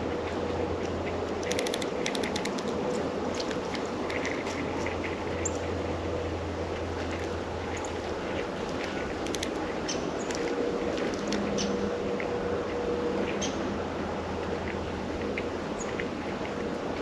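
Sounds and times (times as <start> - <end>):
outdoor background hum: 0.0 - 17.0.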